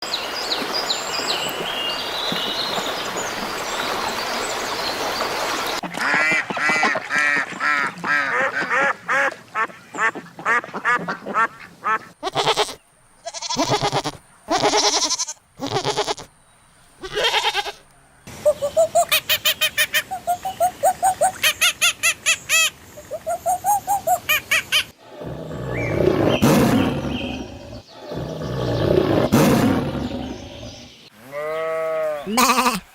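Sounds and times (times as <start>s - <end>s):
ducks quacking: 5.8s - 12.8s.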